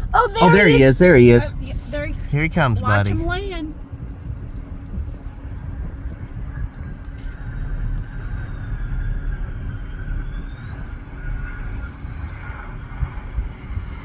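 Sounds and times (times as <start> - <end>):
airplane engines rumbling: 0.0 - 7.1
faint high engine whine: 0.0 - 13.9.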